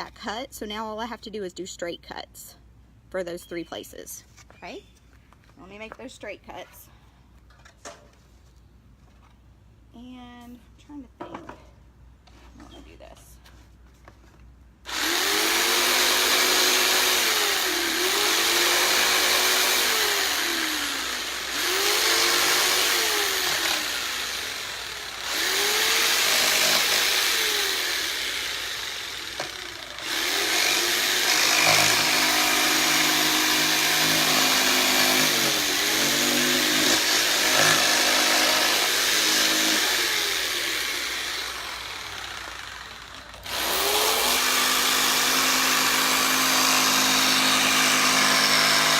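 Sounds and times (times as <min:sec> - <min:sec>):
electric jigsaw cutting wood: 0:14.9 - 0:48.9.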